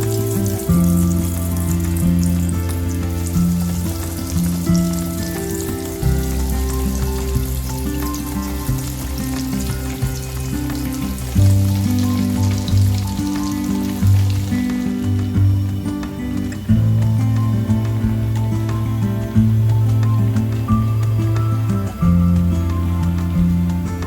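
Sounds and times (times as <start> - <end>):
bread sticks deep frying in oil: 0.0 - 15.3
background music with bass notes: 0.0 - 24.0.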